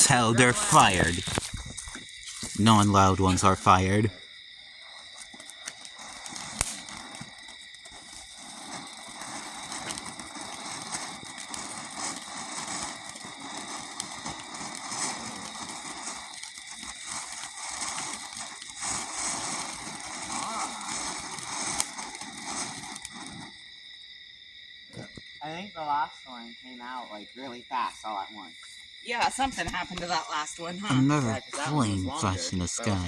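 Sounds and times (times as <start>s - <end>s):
firework fountain hissing and crackling: 0.0s - 33.0s
sharp pop: 6.6s - 6.9s.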